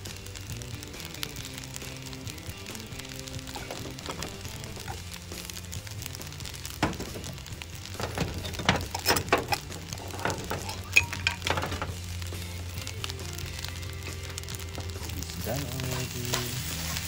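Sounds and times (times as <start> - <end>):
kitchenware clinking: 3.4 - 5.1, 6.8 - 12.1.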